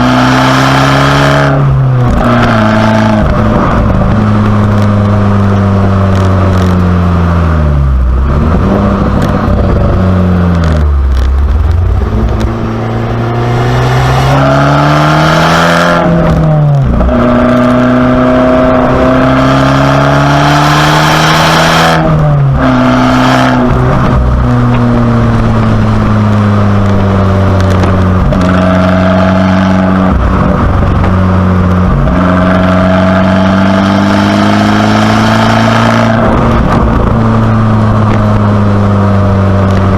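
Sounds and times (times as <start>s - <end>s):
car engine revving through gears: 0.0s - 39.9s.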